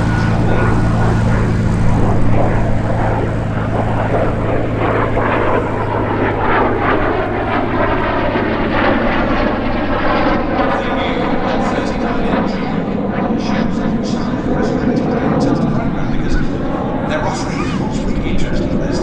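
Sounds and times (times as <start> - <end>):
aircraft engine running: 0.0 - 19.0.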